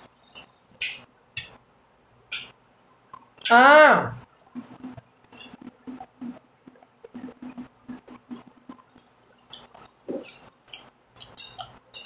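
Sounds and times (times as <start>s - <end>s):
soft chewing: 4.5s - 12.0s.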